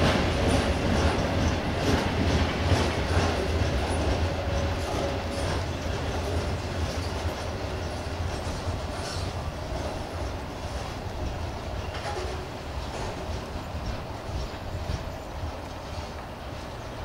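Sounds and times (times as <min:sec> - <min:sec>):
freight train passing: 0:00.0 - 0:17.0
wagon wheels clattering on track: 0:00.0 - 0:17.0.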